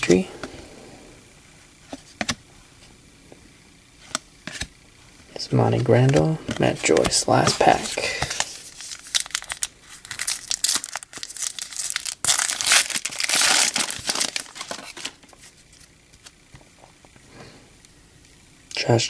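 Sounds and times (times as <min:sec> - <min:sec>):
wrapper tearing and crinkling: 0:06.5 - 0:16.3.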